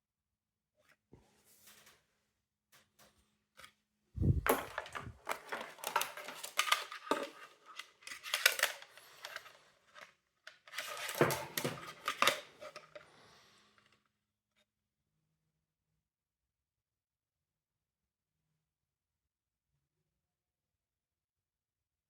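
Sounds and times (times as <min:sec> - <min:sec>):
plastic casing clicking and scraping: 0:04.3 - 0:13.1.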